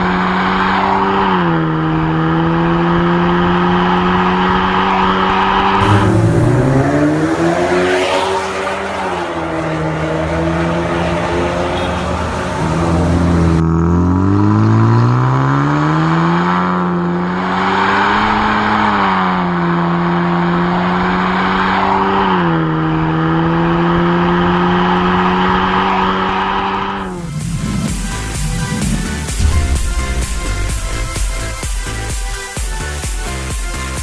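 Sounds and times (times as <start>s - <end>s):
car engine revving: 5.8s - 13.6s, 25.0s - 32.6s.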